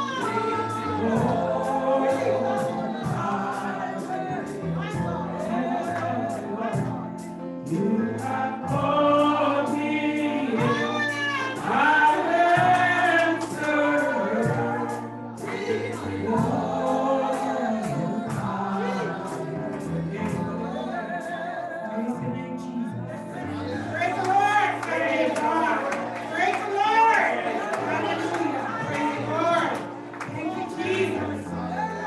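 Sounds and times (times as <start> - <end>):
group singing gospel song: 0.0 - 32.0
instrumental accompaniment: 0.0 - 32.0.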